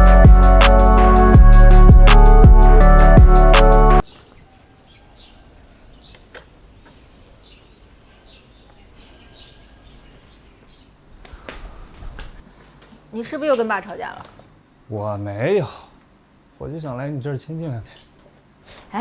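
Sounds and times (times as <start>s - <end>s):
music with drum beat: 0.0s - 4.0s
faint outdoor ambience: 0.0s - 19.0s
bird chirps: 4.0s - 6.4s, 7.4s - 11.0s.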